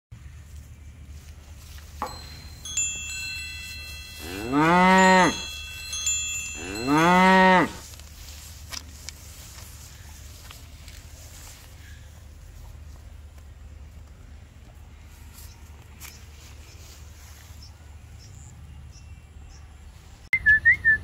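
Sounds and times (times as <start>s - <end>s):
bell-like chime tones: 2.0s - 7.7s
cow mooing: 4.2s - 5.5s, 6.6s - 7.8s.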